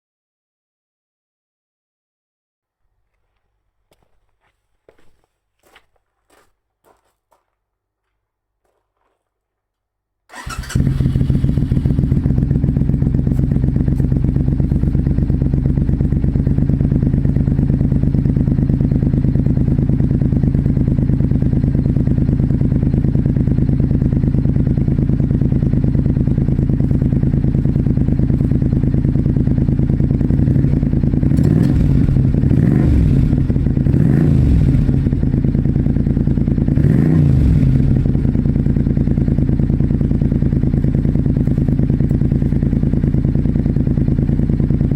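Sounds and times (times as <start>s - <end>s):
motorcycle engine idling: 10.3s - 44.9s
motorcycle throttle blips: 10.3s - 44.9s.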